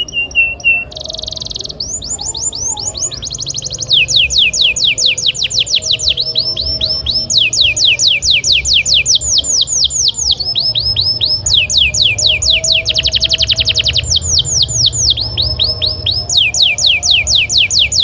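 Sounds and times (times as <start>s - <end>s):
canary singing: 0.0s - 18.0s.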